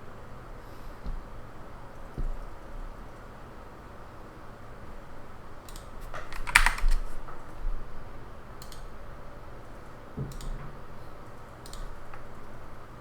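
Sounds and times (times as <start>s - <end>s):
steady background hiss: 0.0s - 13.0s
computer keyboard typing: 5.7s - 7.5s.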